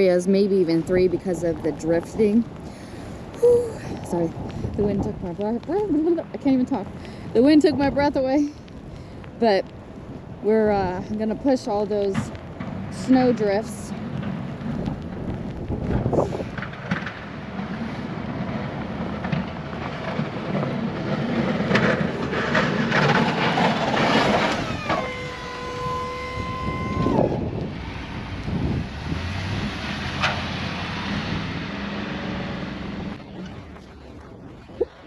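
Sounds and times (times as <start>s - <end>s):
plow pushing snow: 0.0s - 35.0s
snow plow truck engine rumble: 0.0s - 35.0s
strong wind: 0.0s - 35.0s
knocks and scrapes: 13.9s - 25.3s
steady whine dropping in pitch: 23.3s - 35.0s.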